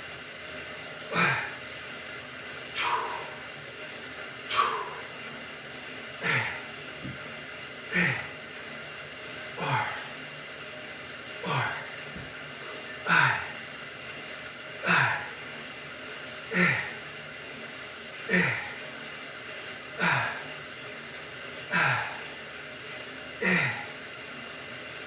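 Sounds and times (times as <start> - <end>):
man exhaling hard: 2.8 - 3.4, 4.5 - 5.1, 13.1 - 13.6, 14.8 - 15.3, 16.5 - 17.0.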